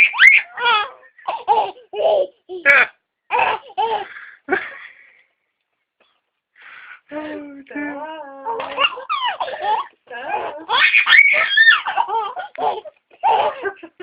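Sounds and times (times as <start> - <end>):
baby laughing: 0.0 - 4.7, 8.5 - 14.0.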